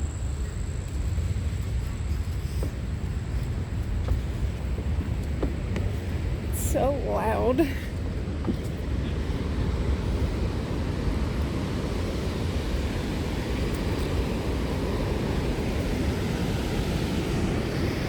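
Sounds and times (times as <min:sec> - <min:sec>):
waterfall roaring: 0:04.1 - 0:18.0.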